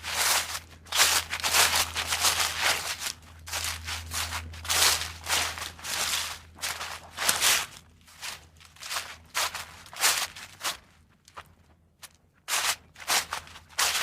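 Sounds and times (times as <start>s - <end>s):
irregular crunching: 0.0s - 14.0s
low steady hum: 0.0s - 14.0s.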